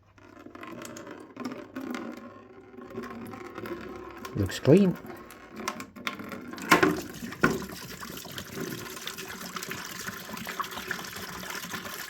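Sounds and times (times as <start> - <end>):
coolant pouring into a bucket: 6.5 - 12.0.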